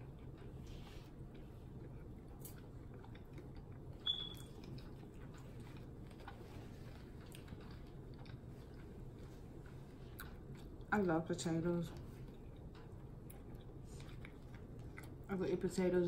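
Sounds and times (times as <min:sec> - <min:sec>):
chewing and mouth clicks: 0:00.0 - 0:10.9, 0:11.9 - 0:15.7
steady low hum: 0:00.0 - 0:16.0
short high squeak: 0:04.0 - 0:04.4.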